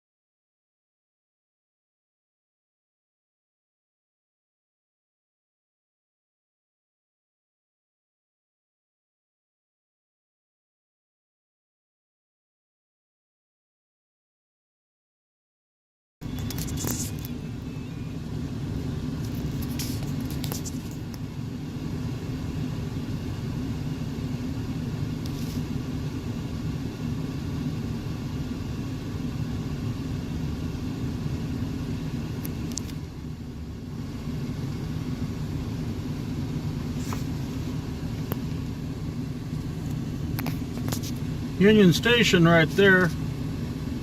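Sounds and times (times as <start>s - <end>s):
car driving low rumble: 16.2s - 44.0s.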